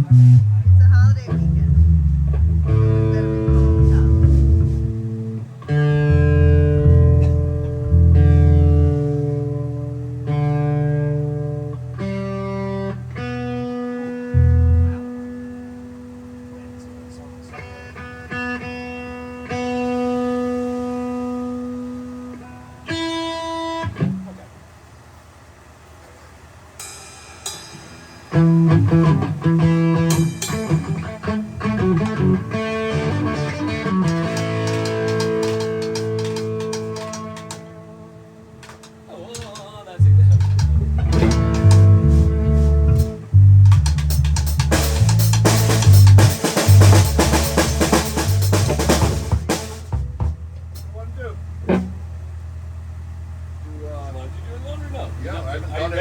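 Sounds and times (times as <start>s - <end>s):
guitar plucking single notes: 0.0s - 24.5s, 27.8s - 52.4s
drum kit and cymbals: 3.3s - 5.2s, 26.7s - 32.4s, 33.0s - 37.6s, 38.8s - 50.9s.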